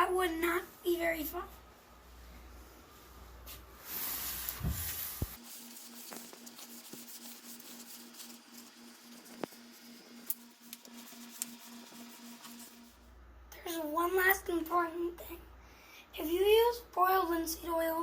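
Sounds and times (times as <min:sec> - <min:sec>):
rag rustling: 0:04.2 - 0:12.8
rag rubbing wood: 0:04.5 - 0:13.0
low pulsing hum: 0:04.5 - 0:14.0.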